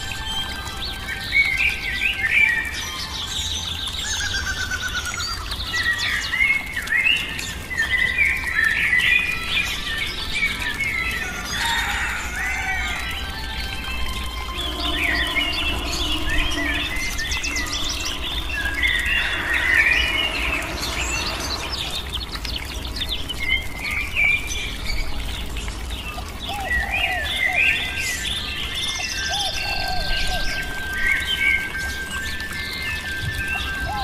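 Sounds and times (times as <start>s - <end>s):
birds chirping and singing: 0.0s - 34.0s.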